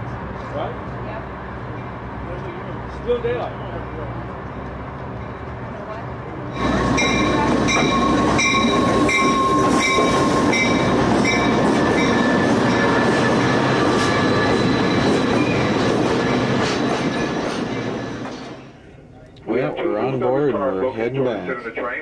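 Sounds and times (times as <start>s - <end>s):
train wheels rumbling and squealing: 0.0s - 19.2s
regular ringing: 6.6s - 15.8s.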